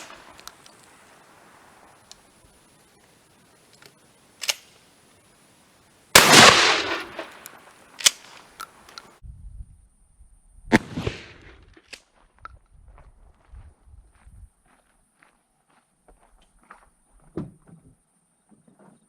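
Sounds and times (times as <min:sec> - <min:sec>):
sharp clicks: 0:03.7 - 0:04.8, 0:06.2 - 0:09.1
quieter bang: 0:06.2 - 0:07.5
shotgun firing: 0:06.2 - 0:07.5, 0:10.7 - 0:11.6.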